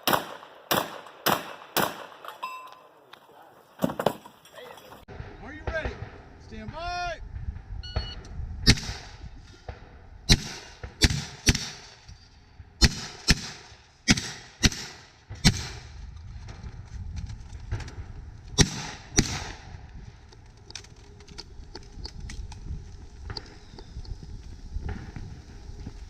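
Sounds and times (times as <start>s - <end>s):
shotgun shots: 0.0s - 2.3s, 8.0s - 12.0s, 12.8s - 15.9s, 18.6s - 19.7s.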